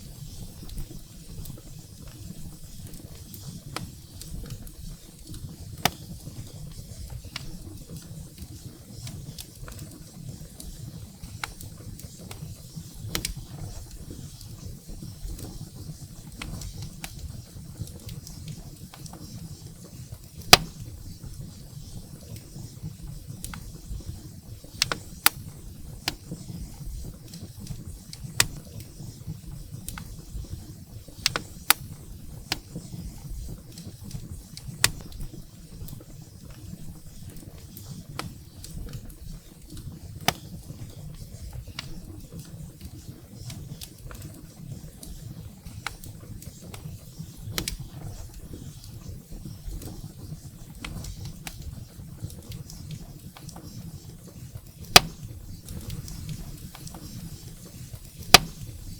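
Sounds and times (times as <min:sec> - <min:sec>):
firewood popping and snapping: 0:05.3 - 0:06.2, 0:20.5 - 0:21.0, 0:24.7 - 0:28.8, 0:31.1 - 0:35.3, 0:54.8 - 0:57.3, 0:58.1 - 0:58.9.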